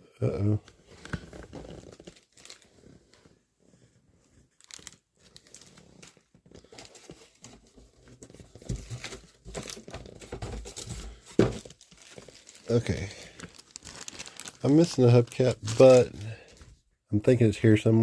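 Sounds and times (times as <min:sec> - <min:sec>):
plastic bags crinkling: 0:01.0 - 0:02.9, 0:04.5 - 0:07.5, 0:08.1 - 0:16.7.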